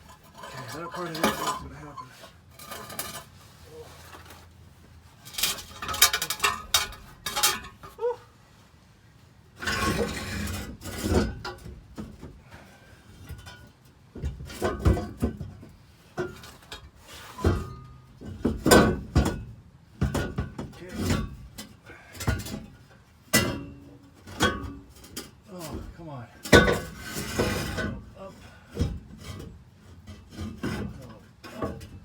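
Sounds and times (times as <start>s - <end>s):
metal clanks and knocks: 0.0s - 3.4s, 5.2s - 8.0s, 9.6s - 12.4s, 13.2s - 32.0s
metal scrape: 0.0s - 4.5s, 9.6s - 11.4s, 26.8s - 28.0s.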